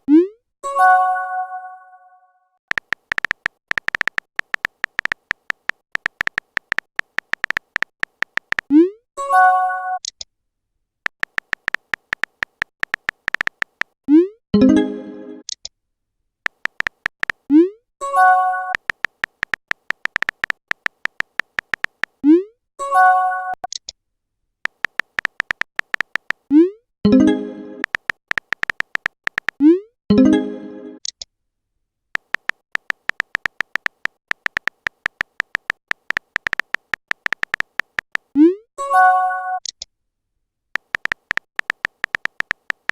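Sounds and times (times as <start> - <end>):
typing taps: 2.7 - 8.7, 11.1 - 14.0, 16.5 - 17.5, 18.6 - 22.2, 24.6 - 26.5, 27.8 - 29.7, 32.2 - 38.4, 40.8 - 42.9.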